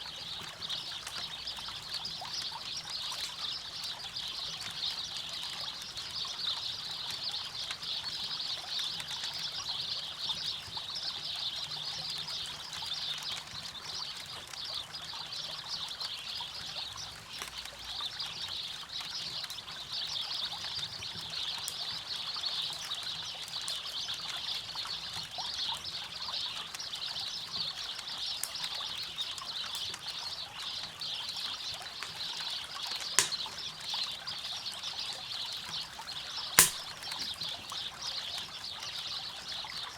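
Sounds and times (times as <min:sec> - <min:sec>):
sharp pop: 0:33.2 - 0:33.6, 0:36.6 - 0:37.3
campfire crackling: 0:33.2 - 0:33.8, 0:36.6 - 0:37.4.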